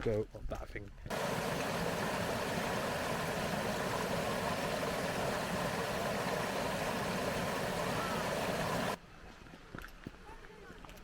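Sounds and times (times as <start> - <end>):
river flowing over stones: 1.1 - 9.0.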